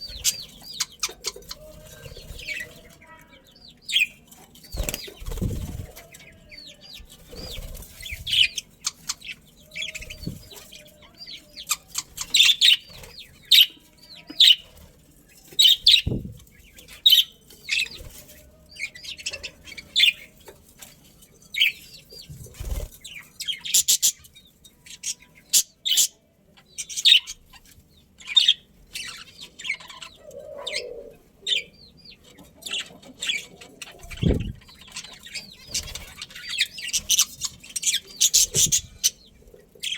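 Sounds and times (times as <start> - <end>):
budgerigars chirping: 0.0 - 2.8, 7.3 - 13.8, 23.0 - 24.3, 26.8 - 27.6, 28.2 - 39.9.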